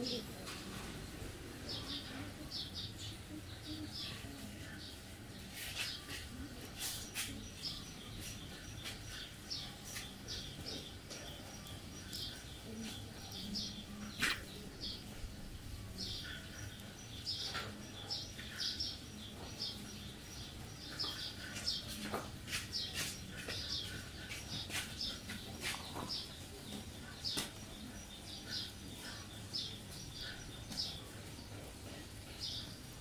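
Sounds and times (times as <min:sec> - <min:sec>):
bird chirping: 0:00.0 - 0:33.0.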